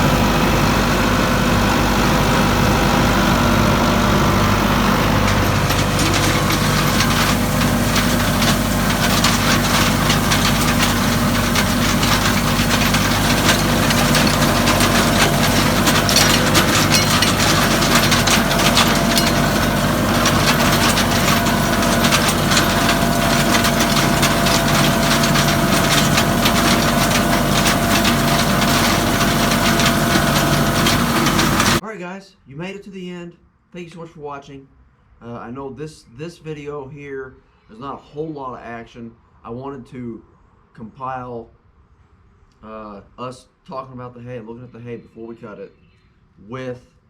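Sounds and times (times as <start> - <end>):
hay implement clattering: 0.0 - 31.8
tractor engine running: 0.0 - 31.8.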